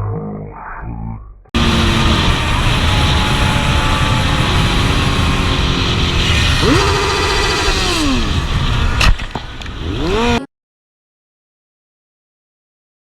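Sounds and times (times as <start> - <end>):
vehicle engine revving: 1.6 - 10.5.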